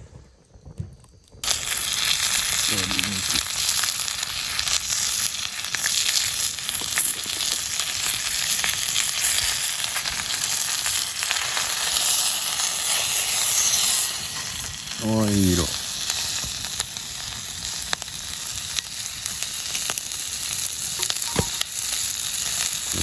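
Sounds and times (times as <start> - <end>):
fat crackling and spitting: 0.8 - 8.9, 22.3 - 23.0
chicken sizzling: 1.4 - 23.0.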